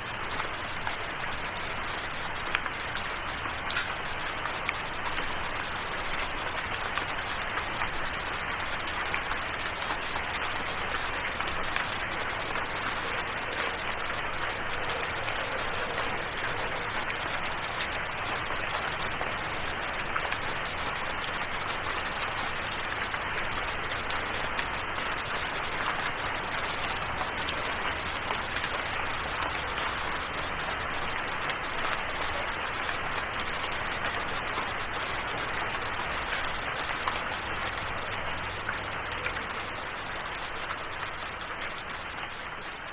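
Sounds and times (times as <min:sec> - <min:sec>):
steady rain with drop taps: 0:00.0 - 0:42.9.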